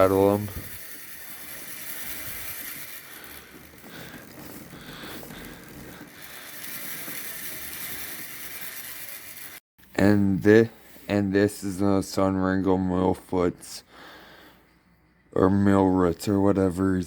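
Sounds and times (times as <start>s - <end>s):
bicycle hub ratcheting clicks: 0.0s - 9.6s.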